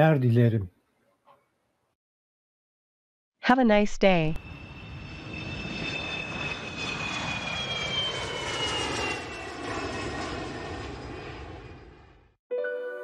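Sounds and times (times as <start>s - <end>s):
jet engines rumbling and whining: 3.9s - 12.4s.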